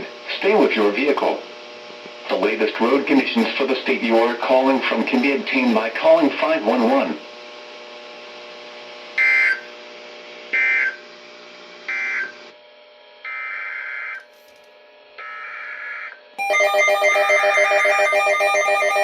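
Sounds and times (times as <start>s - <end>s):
pulsing electronic alert tone: 16.0s - 19.0s.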